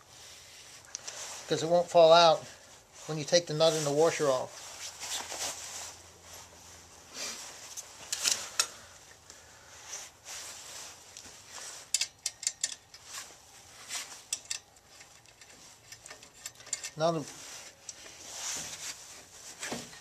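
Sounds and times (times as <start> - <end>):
ratchet wrench clicking: 11.9 - 12.9
small metal parts clicking: 11.9 - 13.1, 14.3 - 17.1.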